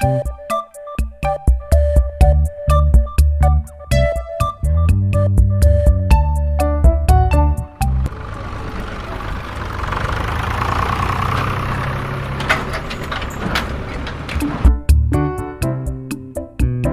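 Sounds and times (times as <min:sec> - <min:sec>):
music: 0:00.0 - 0:08.1, 0:14.2 - 0:16.9
engine rumbling: 0:04.6 - 0:15.4.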